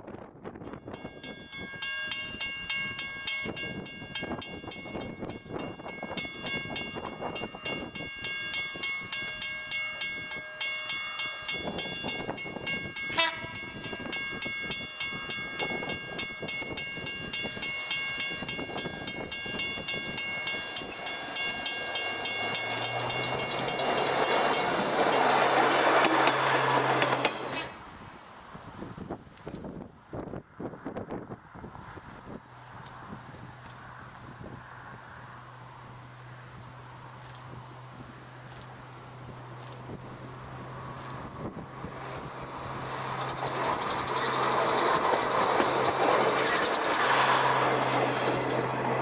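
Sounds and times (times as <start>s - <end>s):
train wheels clicking on track: 2.1s - 27.8s, 38.3s - 49.0s.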